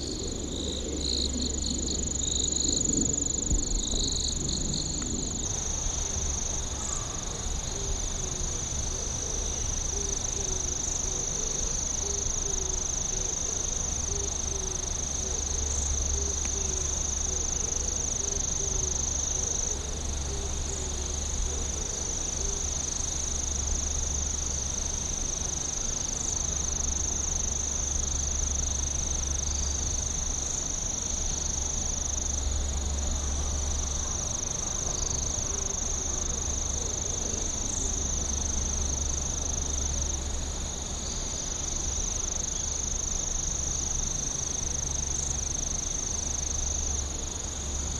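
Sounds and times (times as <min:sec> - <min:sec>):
low rumble: 0:00.0 - 0:06.2
high-pitched insect trill: 0:00.0 - 0:47.9
lower insect chirp: 0:00.0 - 0:47.9.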